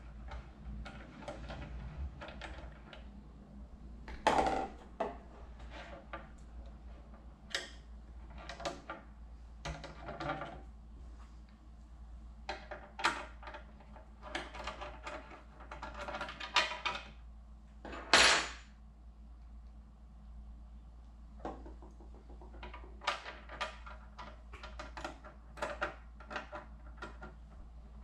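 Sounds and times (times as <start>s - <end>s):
scraping or rustling noise: 5.3s - 7.2s.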